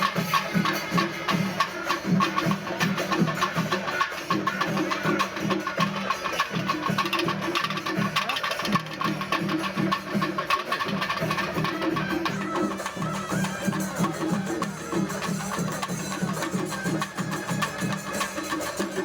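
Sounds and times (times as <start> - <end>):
drums in fast rhythm: 0.0 - 19.0
metal hand cymbals: 0.0 - 19.0.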